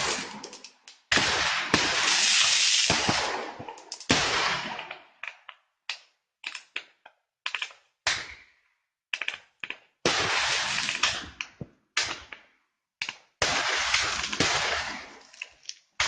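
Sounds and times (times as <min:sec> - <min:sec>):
firework bangs with crackling: 0:00.0 - 0:04.9, 0:10.1 - 0:11.4, 0:13.4 - 0:15.2.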